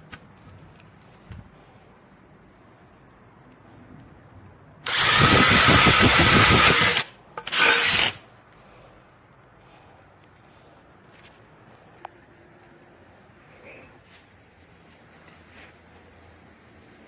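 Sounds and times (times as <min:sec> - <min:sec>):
hammer drill running: 0:04.9 - 0:08.2.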